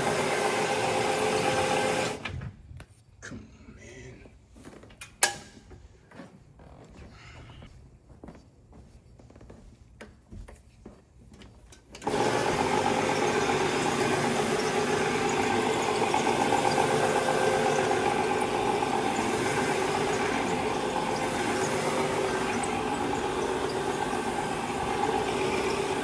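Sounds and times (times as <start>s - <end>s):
carpet cleaner motor running: 0.0s - 2.2s, 12.0s - 26.0s.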